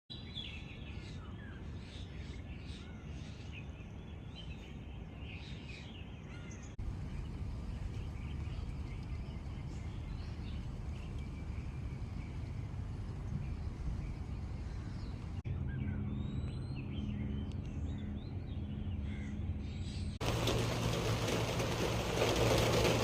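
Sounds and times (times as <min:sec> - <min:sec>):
birds calling and chirping: 0:00.1 - 0:23.0
low rumble: 0:06.8 - 0:23.0.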